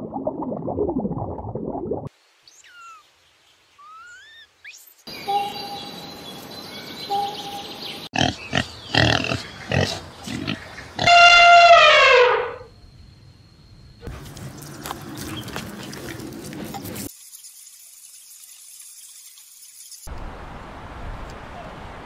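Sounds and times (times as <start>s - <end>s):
faint gliding chirp-like calls: 2.4s - 11.2s
pigs grunting: 8.1s - 11.5s
pig squealing: 8.2s - 12.7s.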